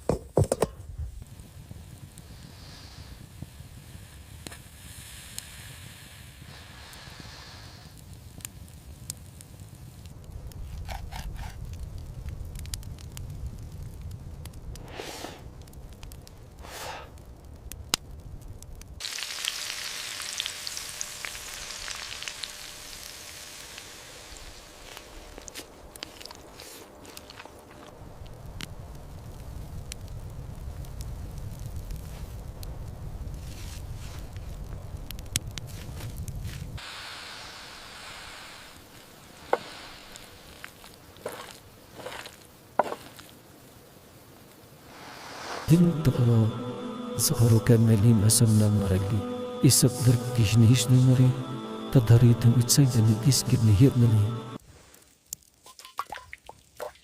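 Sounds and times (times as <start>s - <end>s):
soft hiss: 0.8s - 10.7s, 18.8s - 27.7s, 28.4s - 55.7s
kebabs sizzling: 18.6s - 27.9s, 36.4s - 55.8s
brief whooshes: 44.8s - 45.7s
low rumble: 44.8s - 54.6s.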